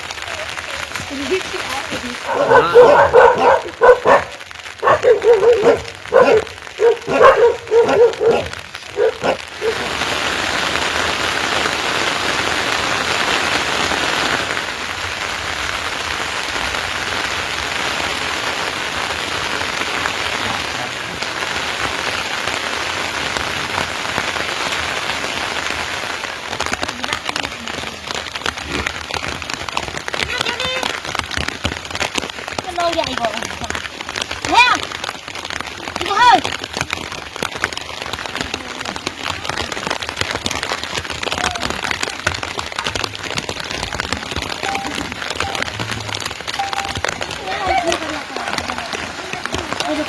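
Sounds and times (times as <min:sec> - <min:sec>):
steady rain falling: 0:00.0 - 0:50.0
dog barking: 0:02.2 - 0:09.9.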